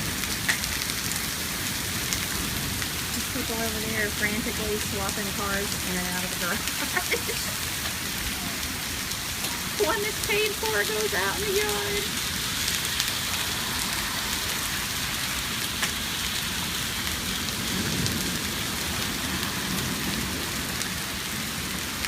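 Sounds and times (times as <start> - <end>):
hail pattering: 0.0 - 22.0
hailstones ticking: 0.0 - 22.0.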